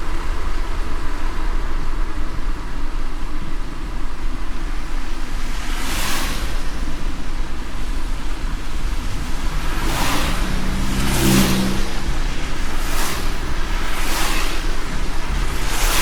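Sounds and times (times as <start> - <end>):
car rumble on road: 0.0 - 16.0
hissing whooshes: 4.8 - 16.0.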